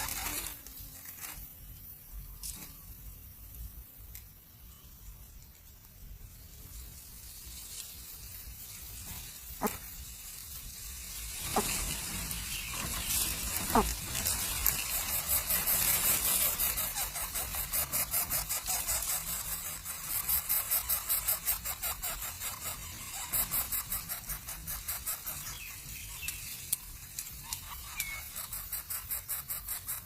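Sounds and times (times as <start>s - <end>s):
high-pitched pulsing animal calls: 9.5s - 10.0s, 11.4s - 26.6s, 27.3s - 30.0s.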